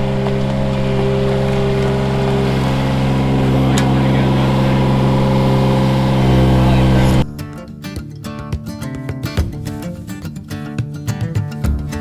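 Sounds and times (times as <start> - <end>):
diesel engine droning: 0.0 - 7.4.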